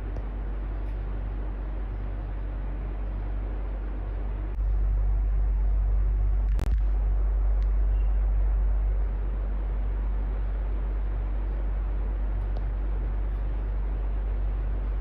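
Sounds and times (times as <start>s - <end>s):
electric fan running: 0.0s - 15.0s
click: 12.4s - 12.7s.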